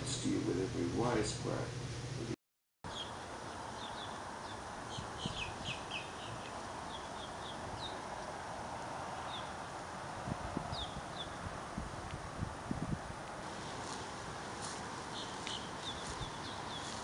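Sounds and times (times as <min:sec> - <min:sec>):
outdoor background noise: 0:00.0 - 0:17.0
small birds chirping: 0:02.9 - 0:09.7, 0:10.6 - 0:11.5, 0:13.6 - 0:17.0.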